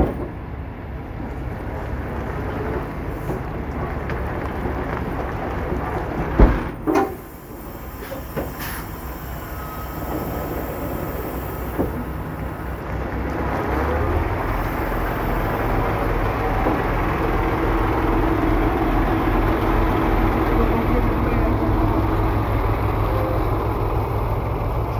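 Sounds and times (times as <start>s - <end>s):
truck diesel engine running: 0.0s - 24.9s
sharp knocks: 6.4s - 7.3s.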